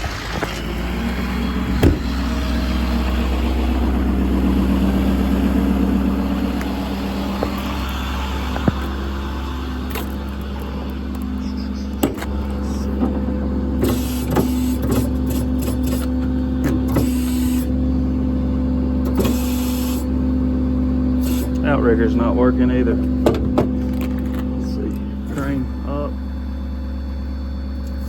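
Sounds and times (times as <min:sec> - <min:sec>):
truck motor hum and whine: 0:00.0 - 0:28.0.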